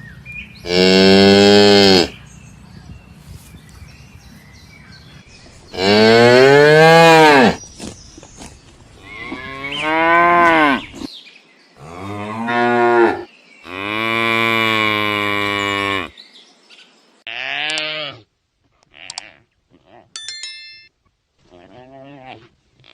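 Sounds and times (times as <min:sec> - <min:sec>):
cattle mooing: 0:00.7 - 0:02.2.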